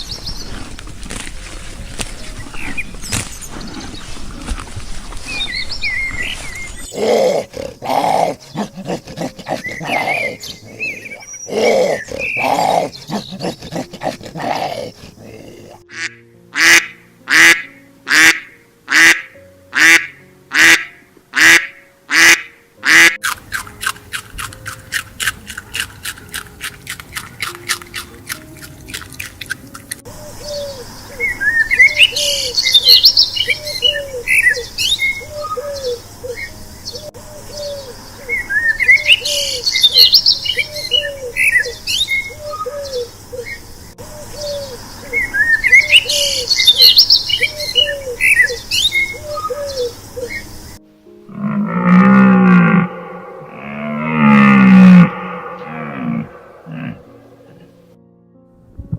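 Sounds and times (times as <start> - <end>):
animal calls: 6.8 - 36.5, 51.3 - 58.0
high bird chirping: 30.2 - 50.5.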